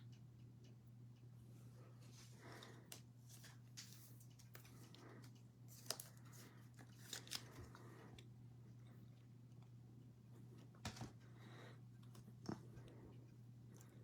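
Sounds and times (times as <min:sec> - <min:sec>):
low steady hum: 0:00.0 - 0:14.0
trading cards clicking and rustling: 0:03.3 - 0:07.7.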